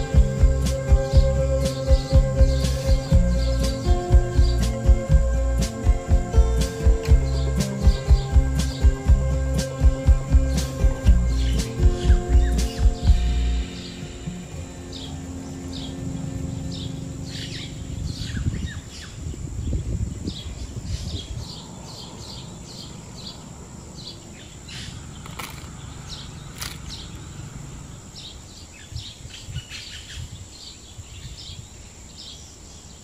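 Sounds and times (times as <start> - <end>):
steady high-pitched whine: 0.0 - 30.6
small birds chirping: 0.0 - 33.0
sharp clicks: 25.2 - 25.8, 26.5 - 27.0.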